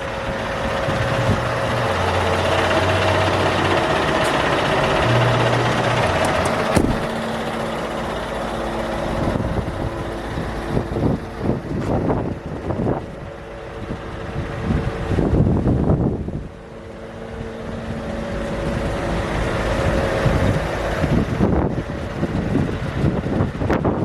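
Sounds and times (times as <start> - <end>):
wind noise on microphone: 0.0 - 7.4, 9.0 - 16.6, 17.4 - 24.0
diesel truck engine running: 0.0 - 24.0
sharp knock: 6.2 - 7.1.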